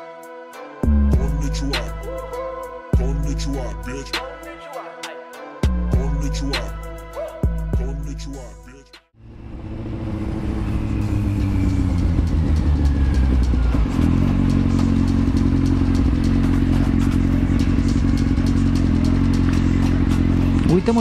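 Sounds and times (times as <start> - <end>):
motorcycle engine running: 9.2 - 21.0.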